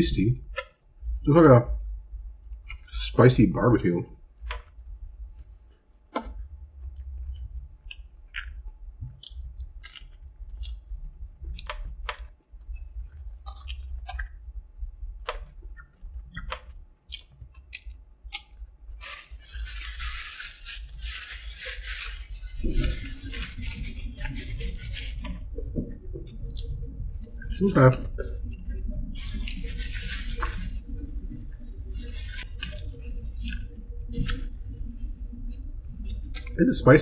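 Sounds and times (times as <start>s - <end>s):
chewing crispy food: 4.4s - 37.0s
wet mouth clicks and crunches: 6.2s - 14.5s, 15.2s - 25.4s
paper wrapper crinkling: 18.4s - 26.7s, 27.5s - 37.0s.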